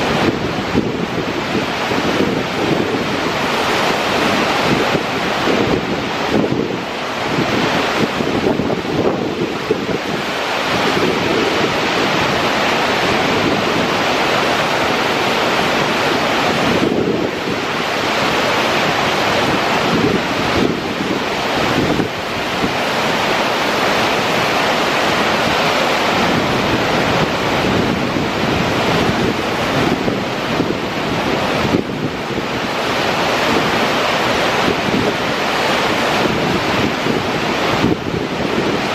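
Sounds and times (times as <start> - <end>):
waterfall rushing: 0.0 - 38.9
wind on microphone: 0.0 - 38.9.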